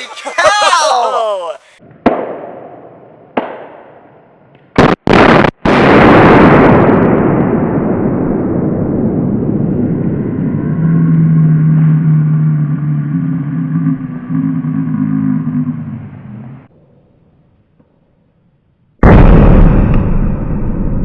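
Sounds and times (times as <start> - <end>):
explosion rumbling roar: 5.1 - 16.7, 19.0 - 21.0.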